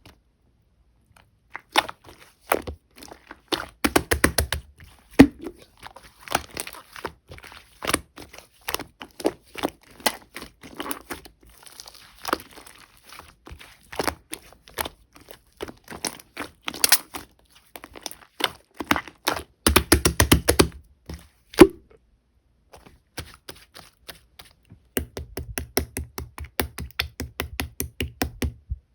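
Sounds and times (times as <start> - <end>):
slime squished by hand: 1.5 - 21.9.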